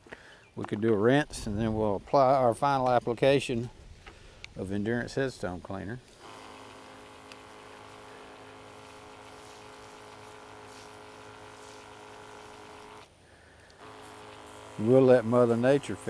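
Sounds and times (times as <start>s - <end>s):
small electric pump running: 6.1s - 16.0s.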